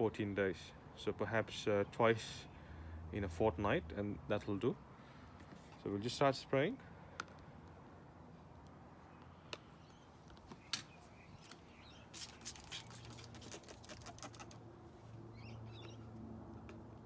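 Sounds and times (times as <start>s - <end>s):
birds chirping: 9.0s - 13.3s, 15.3s - 16.1s
hand sprayer squirting: 11.4s - 14.6s.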